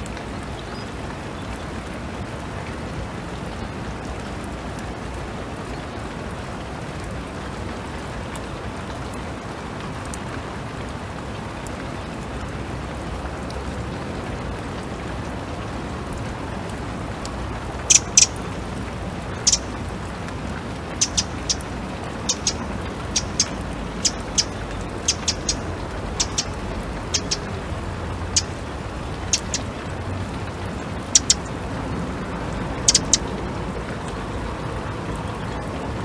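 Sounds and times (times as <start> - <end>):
steady rain falling: 0.0 - 36.0
bird chirping: 17.8 - 20.2, 20.8 - 31.6, 32.8 - 33.4.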